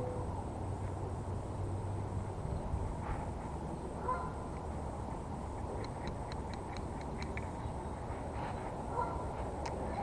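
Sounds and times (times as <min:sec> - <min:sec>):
low outdoor background noise: 0:00.0 - 0:10.0
quick light ticks: 0:05.7 - 0:07.6.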